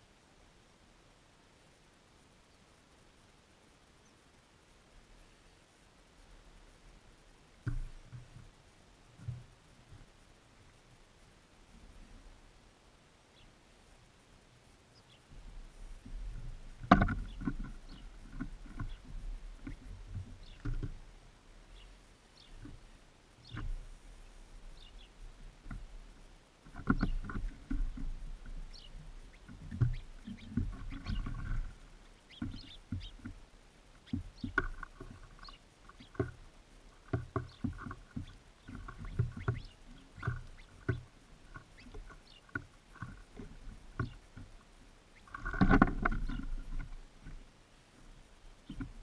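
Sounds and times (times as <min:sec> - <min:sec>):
birds pecking and scrabbling: 0:04.0 - 0:49.0
faint high bird chirps: 0:28.7 - 0:33.3, 0:37.4 - 0:40.9.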